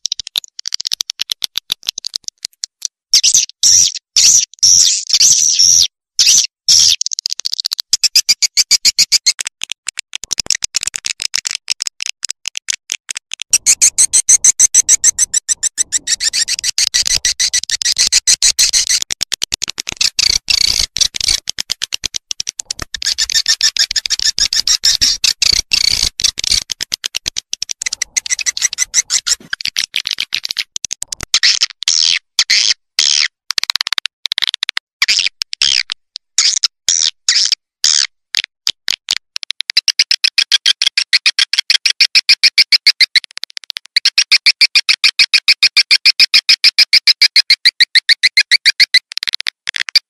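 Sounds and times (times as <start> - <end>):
rapid high bird twittering: 13.5 - 19.0, 22.8 - 26.6, 27.8 - 29.9.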